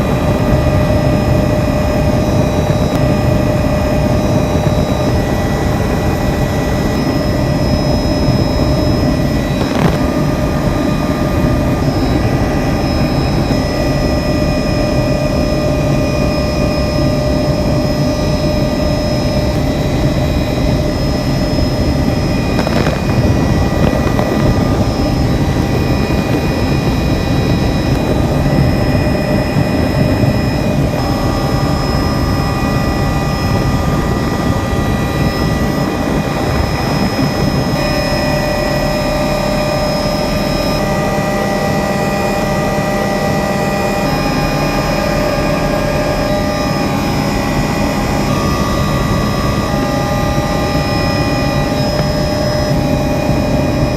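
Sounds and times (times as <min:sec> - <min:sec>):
helicopter engine and rotor noise: 0:00.0 - 0:53.9
high whining tones: 0:00.0 - 0:53.9.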